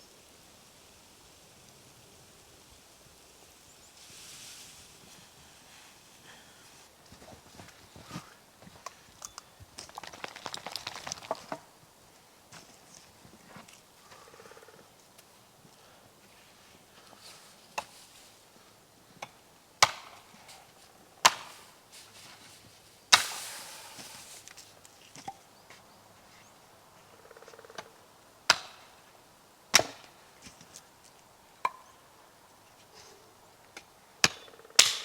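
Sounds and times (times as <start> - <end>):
wood being chopped: 19.2 - 20.3, 21.2 - 21.6, 23.1 - 23.6, 28.5 - 28.9, 29.7 - 30.2, 33.8 - 35.0.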